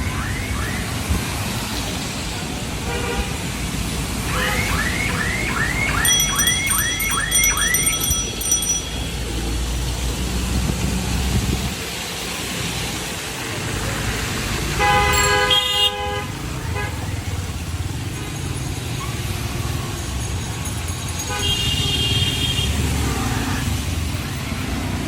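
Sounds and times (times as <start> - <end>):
road traffic rumbling: 0.0 - 25.0
vehicle alarm rising chirps: 4.5 - 9.0.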